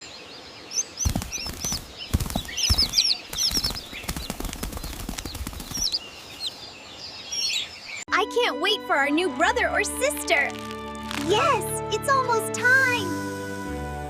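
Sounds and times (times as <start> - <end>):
small birds chirping: 0.0 - 8.1
sharp taps and low thumps: 1.0 - 5.9.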